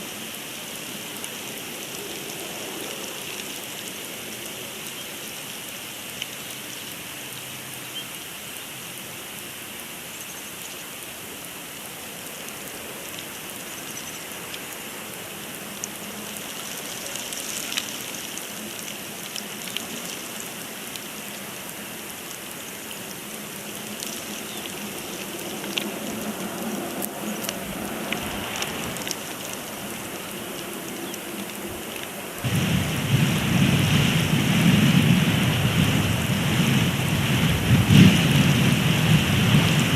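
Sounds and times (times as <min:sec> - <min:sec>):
snowstorm hiss: 0:00.0 - 0:39.9
faint ticks: 0:11.7 - 0:32.2
loud low rumble: 0:32.4 - 0:39.9.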